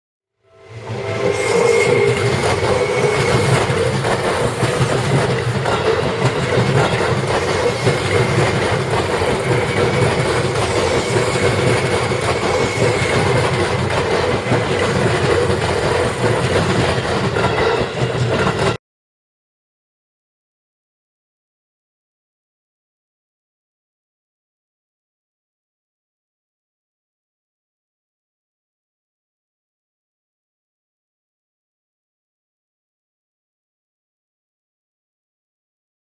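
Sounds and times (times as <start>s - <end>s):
electric train running past: 0.4s - 18.8s
wheels clattering over rail joints: 2.1s - 18.8s.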